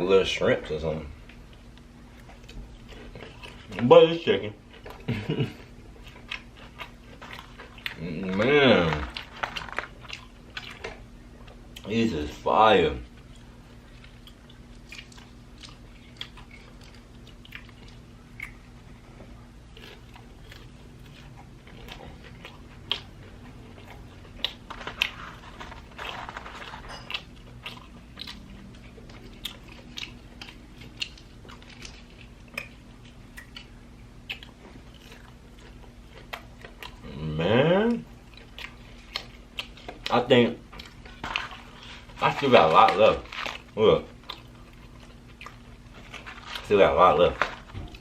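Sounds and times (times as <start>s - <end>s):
chewing crispy fried chicken: 0.3s - 48.0s.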